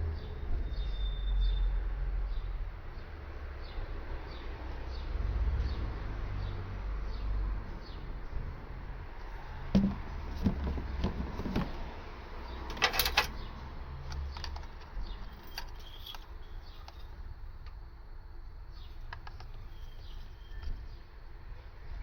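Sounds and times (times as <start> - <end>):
dull handling knocks: 9.7 - 11.9.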